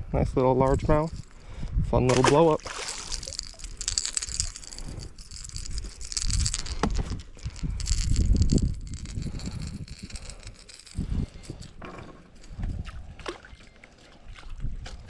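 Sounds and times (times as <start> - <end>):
rustling: 2.6 - 12.7.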